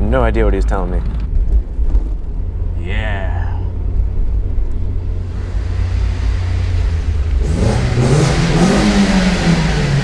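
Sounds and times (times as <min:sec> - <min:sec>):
engine and road rumble: 0:00.0 - 0:10.0
engine accelerating: 0:04.2 - 0:10.0.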